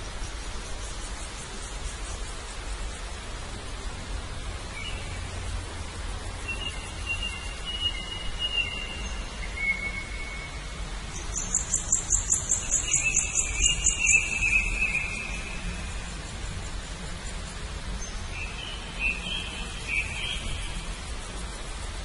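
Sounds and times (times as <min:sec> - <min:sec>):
low background noise: 0:00.0 - 0:22.0
songbirds whistling: 0:06.4 - 0:16.1, 0:18.0 - 0:20.9.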